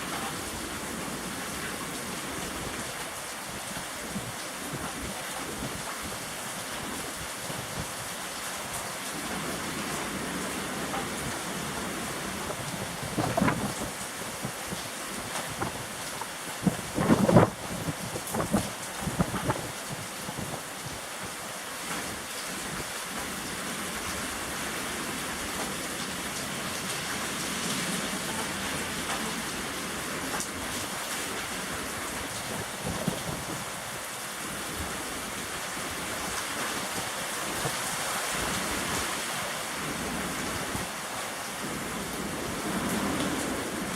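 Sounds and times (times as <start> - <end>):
strong wind: 0.0 - 25.5, 26.8 - 43.9
rain falling: 0.0 - 43.9
wind buffeting microphone: 11.2 - 21.4, 32.0 - 39.2
wind rushing: 12.5 - 14.8, 16.6 - 20.6.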